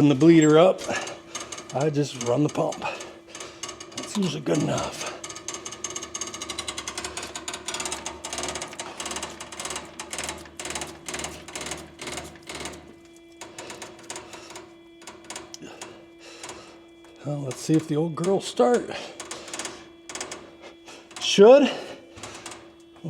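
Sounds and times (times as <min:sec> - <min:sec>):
fuel pump ticking rapidly: 0:00.0 - 0:23.0
steady hum: 0:00.0 - 0:23.0.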